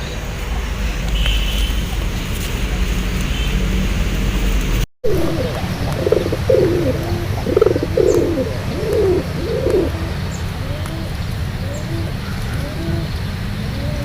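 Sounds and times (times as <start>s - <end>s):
pigeons cooing: 5.0s - 14.0s
steady low rumble: 5.1s - 10.8s.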